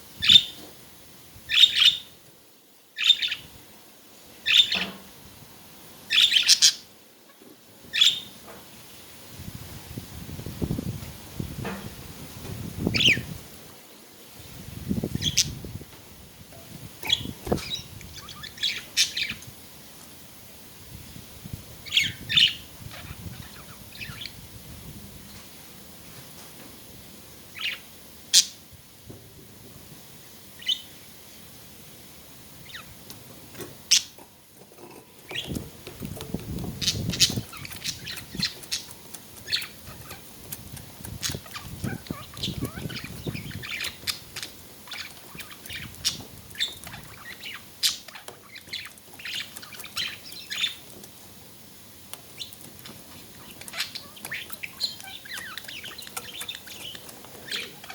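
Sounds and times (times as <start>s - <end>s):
budgerigars chirping: 0.2s - 0.6s, 1.5s - 2.1s, 3.0s - 3.4s, 4.4s - 4.9s, 6.1s - 6.9s, 7.9s - 8.3s, 12.9s - 13.3s, 15.1s - 15.6s, 17.0s - 19.5s, 21.8s - 24.4s, 27.6s - 28.6s, 30.6s - 30.9s, 36.4s - 51.0s, 52.3s - 57.9s.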